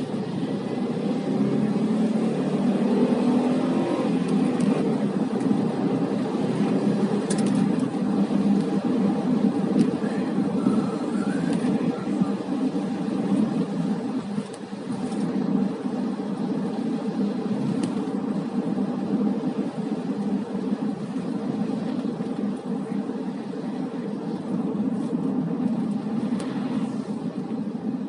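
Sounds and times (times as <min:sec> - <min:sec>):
car engine and tyre rumble: 0:00.0 - 0:28.0.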